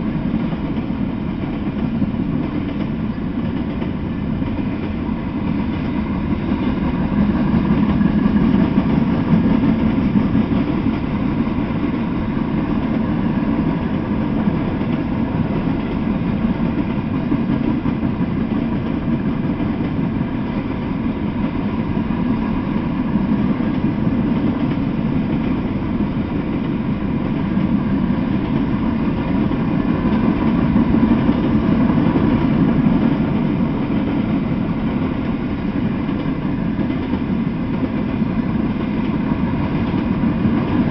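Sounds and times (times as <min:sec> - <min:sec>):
freight train creeping past: 0:00.0 - 0:40.9.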